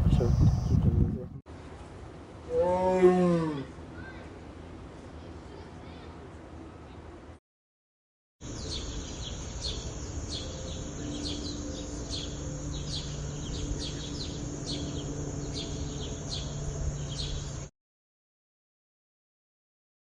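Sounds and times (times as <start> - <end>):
outdoor background noise: 0.0 - 7.4, 8.4 - 17.7
bird chirping downward: 8.5 - 17.7
high-pitched buzz: 8.5 - 17.7.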